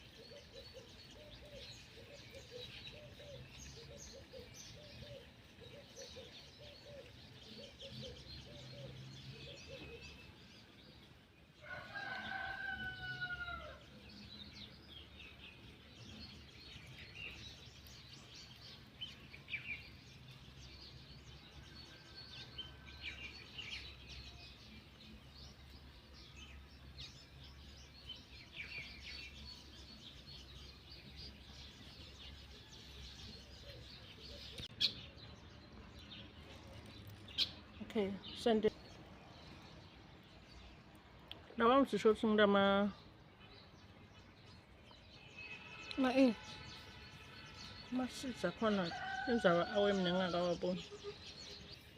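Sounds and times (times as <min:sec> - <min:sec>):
small birds chirping: 0:00.0 - 0:51.9
rooster crowing: 0:11.6 - 0:13.9, 0:48.9 - 0:50.2.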